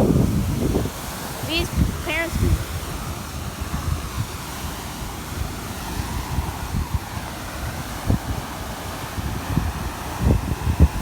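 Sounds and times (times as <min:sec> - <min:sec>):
water gushing from a hydrant: 0:00.0 - 0:11.0
wind buffeting microphone: 0:00.0 - 0:11.0.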